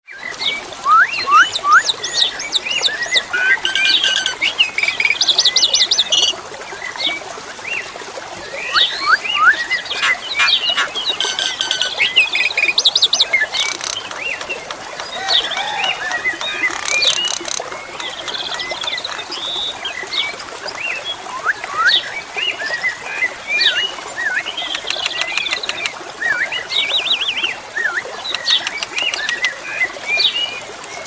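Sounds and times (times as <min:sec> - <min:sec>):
running water: 0:00.1 - 0:31.0
starling singing whistles: 0:03.3 - 0:04.5.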